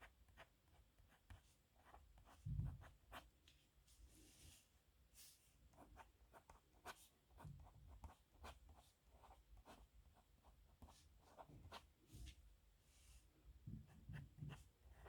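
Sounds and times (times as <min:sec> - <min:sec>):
pen scratching on paper: 0:10.8 - 0:11.8.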